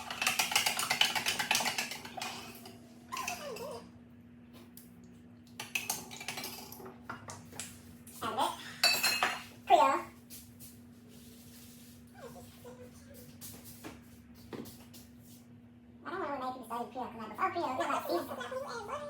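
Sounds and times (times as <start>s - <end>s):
utensils and dishes clinking: 0.0s - 3.8s, 5.6s - 7.3s, 8.8s - 9.5s.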